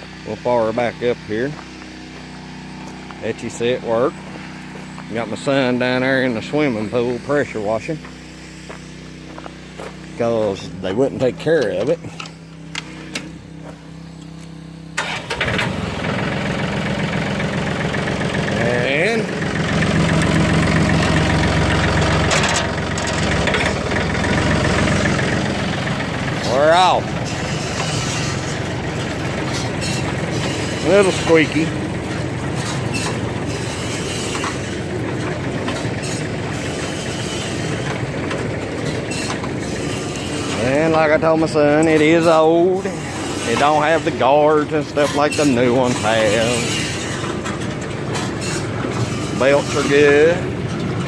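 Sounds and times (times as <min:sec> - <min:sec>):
diesel tractor engine: 0:00.0 - 0:51.0
baler mechanical clatter: 0:15.0 - 0:51.0
metal clanks: 0:19.6 - 0:51.0.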